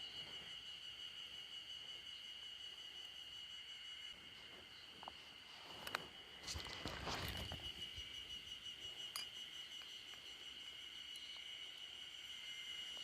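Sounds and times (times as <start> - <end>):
cicadas droning: 0.0 - 13.0
rustling: 4.4 - 7.9.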